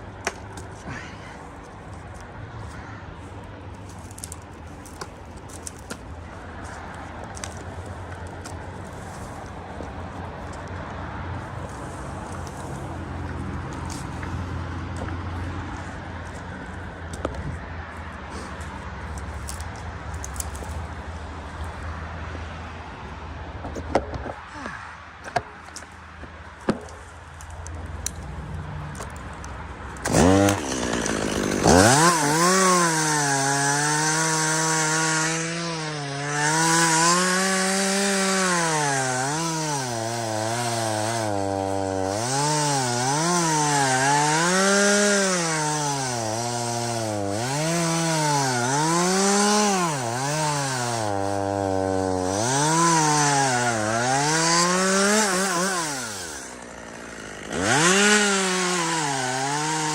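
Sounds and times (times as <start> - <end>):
chainsaw cutting wood: 29.9 - 59.9.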